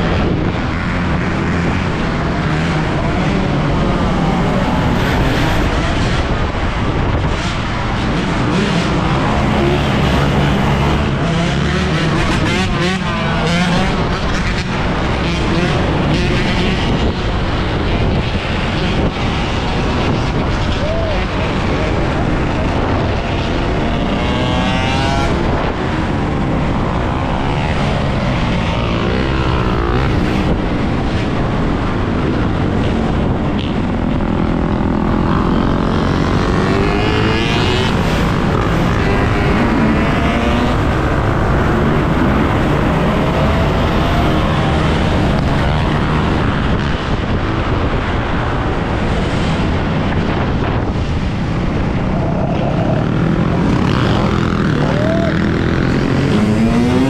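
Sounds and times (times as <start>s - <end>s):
wind noise on microphone: 0.0s - 57.0s.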